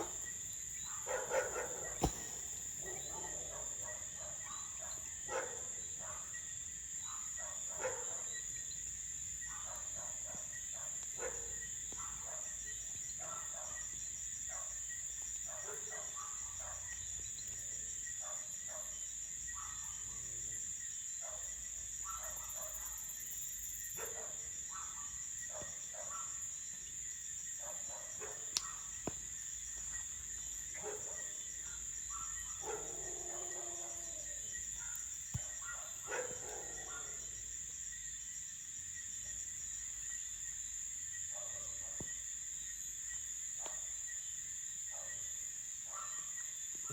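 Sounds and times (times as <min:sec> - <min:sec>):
crickets trilling: 0:00.0 - 0:46.9
sharp pops: 0:01.6 - 0:03.1, 0:28.5 - 0:29.4.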